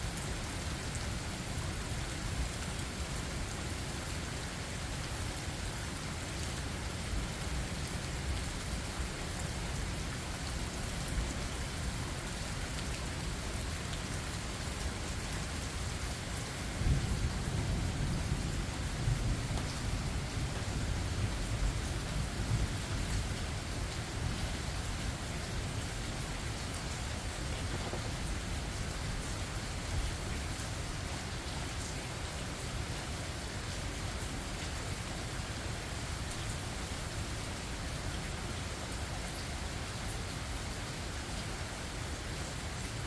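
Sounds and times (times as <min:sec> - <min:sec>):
rain falling in forest: 0:00.0 - 0:43.0
thunder rumble: 0:16.8 - 0:22.8.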